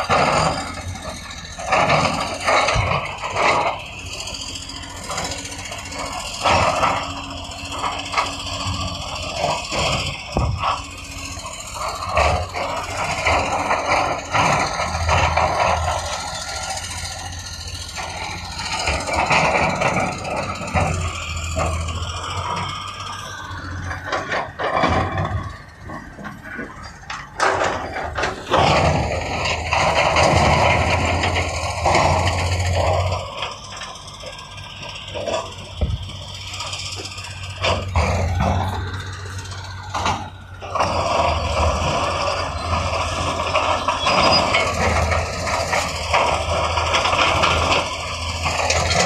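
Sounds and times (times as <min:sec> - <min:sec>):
diesel engine drone: 0:00.0 - 0:49.0
machinery knocks and scrapes: 0:23.8 - 0:33.9.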